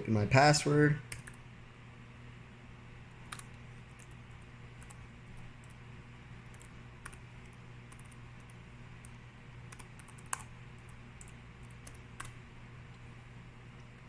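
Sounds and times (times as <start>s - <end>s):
low steady hum: 0.0s - 14.0s
laptop keyboard typing: 1.1s - 1.4s, 3.2s - 5.8s, 6.4s - 12.4s.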